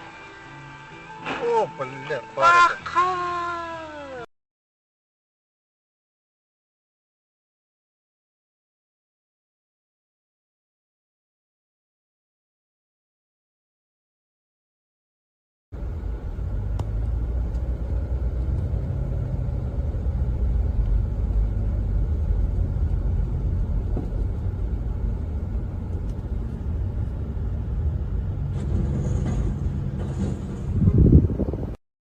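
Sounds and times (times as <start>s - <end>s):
vehicle engine and road noise: 15.8s - 31.8s.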